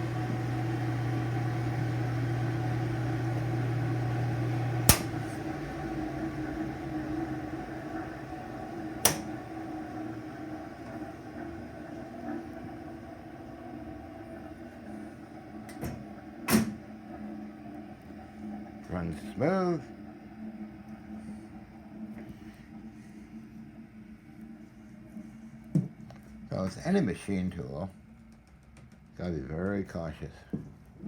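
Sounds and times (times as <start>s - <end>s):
motor humming: 0.0s - 29.0s
sharp switch clicks: 4.9s - 5.2s, 9.0s - 9.3s.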